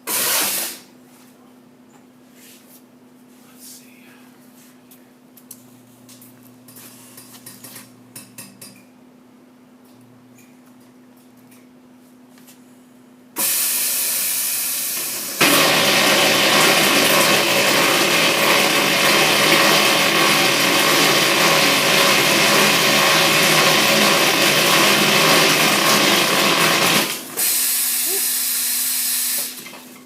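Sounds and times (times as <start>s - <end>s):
machine running mechanical noise: 13.4s - 30.0s.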